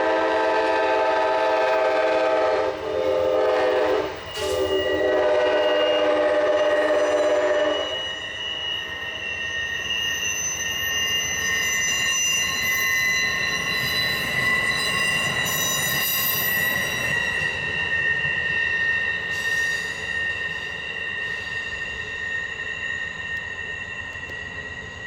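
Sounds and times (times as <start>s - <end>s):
train wheels squealing: 0.0s - 25.0s.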